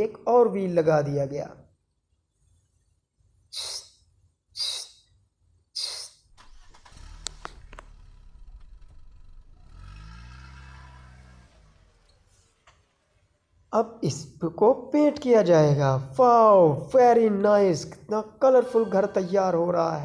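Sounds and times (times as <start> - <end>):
short hissing bursts: 3.5 - 4.0, 4.6 - 5.1, 5.8 - 6.2
low motor rumble: 6.3 - 13.5.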